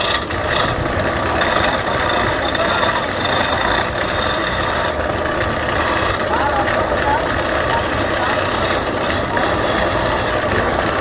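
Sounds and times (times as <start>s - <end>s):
wood lathe running: 0.0s - 11.0s.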